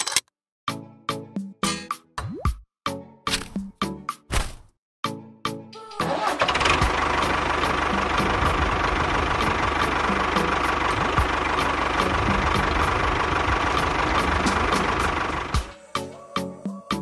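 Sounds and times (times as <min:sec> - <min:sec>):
small engine running: 0:06.0 - 0:15.8.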